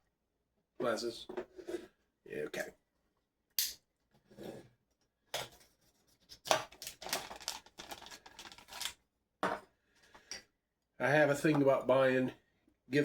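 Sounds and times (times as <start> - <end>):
packaging rustling and scraping: 5.6 - 9.0.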